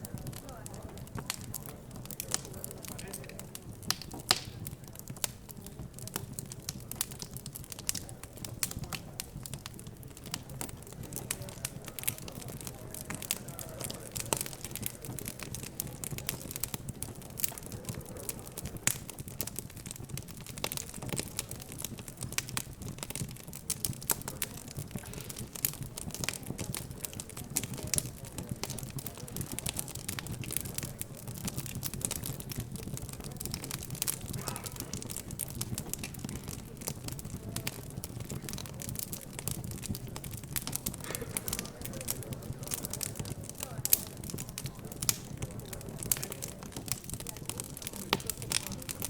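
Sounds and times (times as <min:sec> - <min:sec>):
murmur of background chatter: 0:00.0 - 0:49.0
wood fire crackling: 0:00.0 - 0:49.0.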